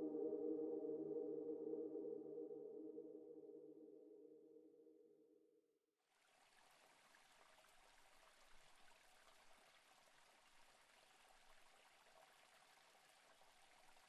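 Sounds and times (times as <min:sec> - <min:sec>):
background music: 0:00.0 - 0:04.3
faint running water: 0:06.0 - 0:14.0.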